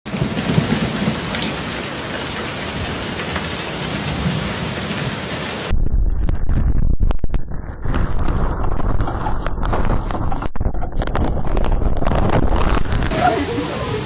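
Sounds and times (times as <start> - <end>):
heavy rain: 0.1 - 6.8, 7.6 - 14.0
deep rumbling noise: 5.7 - 14.0.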